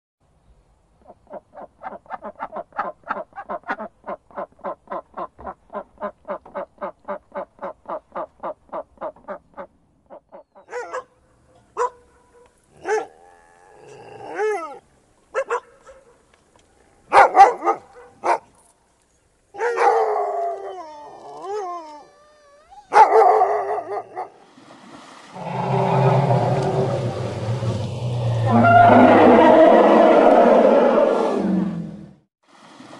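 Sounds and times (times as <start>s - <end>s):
dogs barking: 10.6s - 11.2s, 11.8s - 13.2s, 15.4s - 16.2s, 17.1s - 18.5s, 19.6s - 20.4s, 22.9s - 24.4s
water splashing: 24.4s - 29.2s.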